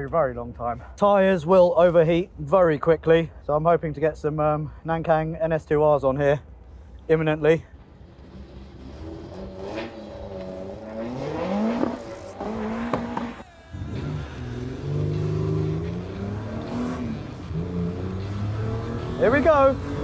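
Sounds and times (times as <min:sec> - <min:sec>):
car engine accelerating: 0:08.0 - 0:20.0.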